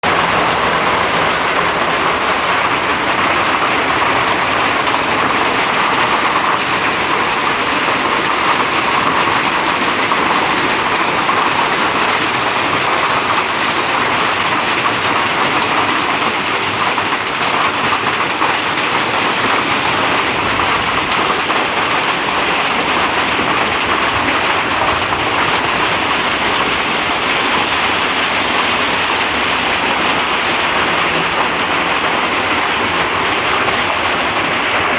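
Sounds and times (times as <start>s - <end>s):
rain falling: 0.0s - 34.9s.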